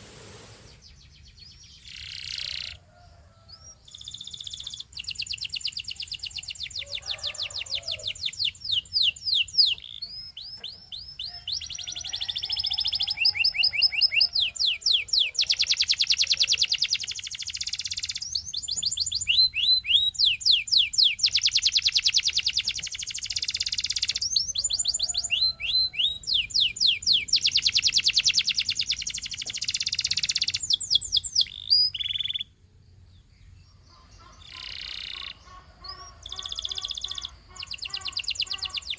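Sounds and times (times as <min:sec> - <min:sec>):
canary singing trills: 0:00.6 - 0:38.9.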